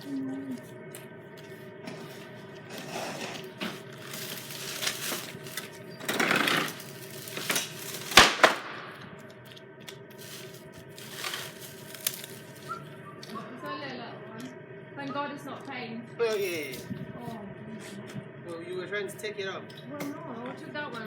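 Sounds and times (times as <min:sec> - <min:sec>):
engine humming: 0:00.0 - 0:16.2
loud sharp bang: 0:08.2 - 0:09.1.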